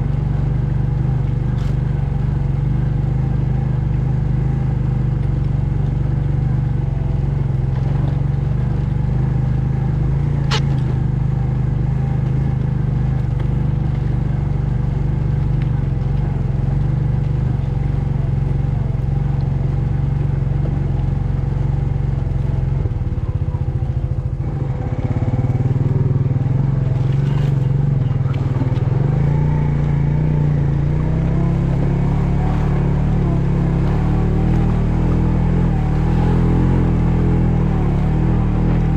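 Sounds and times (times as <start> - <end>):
engine running: 0.0 - 38.9
sharp click: 10.4 - 10.9.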